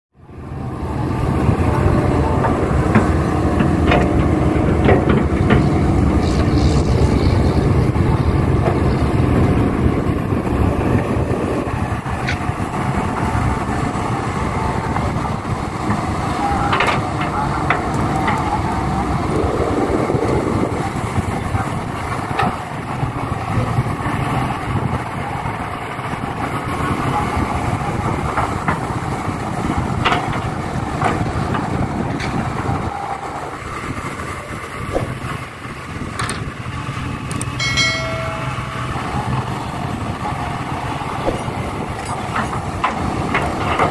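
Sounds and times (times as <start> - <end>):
heavy diesel engines running: 0.1 - 43.9
metal knocks and clanks: 2.4 - 6.4, 41.2 - 43.9.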